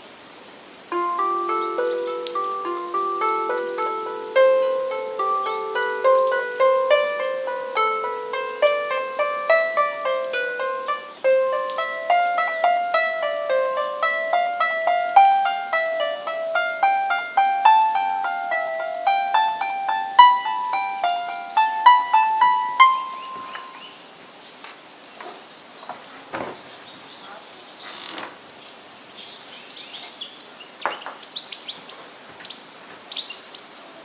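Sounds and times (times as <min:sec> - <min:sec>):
lyre being plucked: 0:00.9 - 0:24.0.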